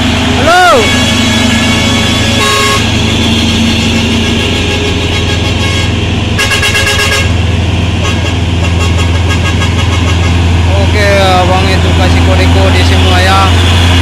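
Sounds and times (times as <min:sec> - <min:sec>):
heavy diesel truck engines: 0:00.0 - 0:14.0
rasping horn-like burst: 0:00.4 - 0:10.6.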